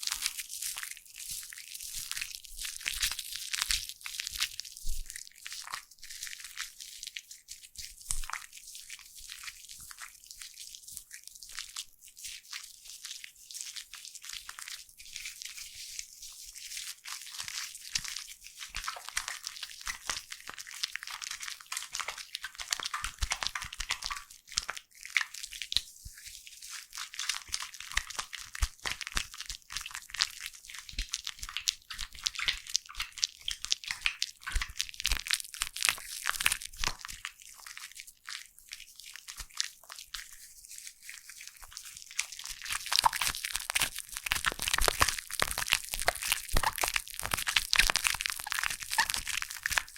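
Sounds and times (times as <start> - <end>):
foam bubbles crackling: 41.6 - 49.9.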